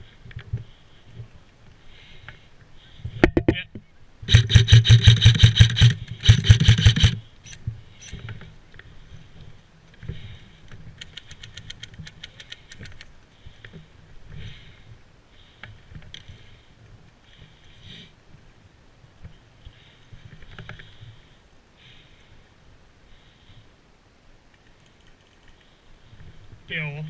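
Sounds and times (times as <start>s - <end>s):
airsoft gun full-auto bursts: 4.3s - 7.2s
distant gunfire bursts: 4.3s - 7.2s.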